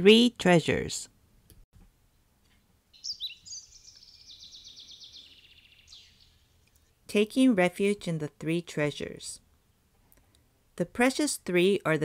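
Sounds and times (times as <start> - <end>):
songbird chirping and trilling: 2.9 - 7.3.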